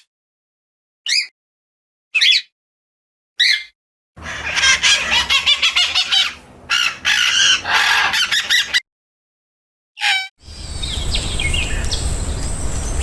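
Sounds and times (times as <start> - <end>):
birds chirping and chattering: 4.2 - 8.8, 10.5 - 13.0.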